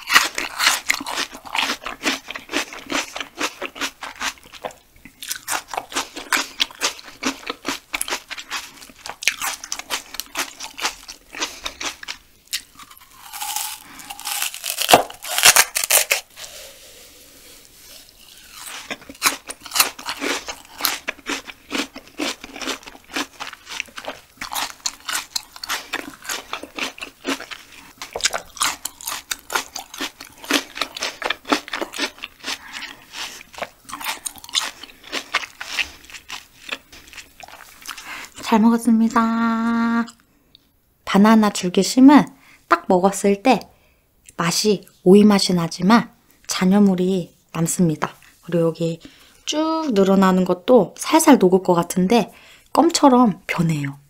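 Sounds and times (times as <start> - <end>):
crisp chewing and crunching: 0.0 - 16.6, 17.8 - 38.5.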